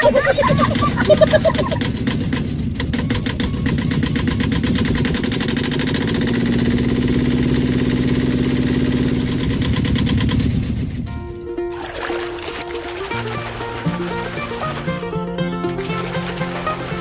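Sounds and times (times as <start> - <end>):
small engine running: 0.0 - 17.0
music with held notes: 11.1 - 17.0.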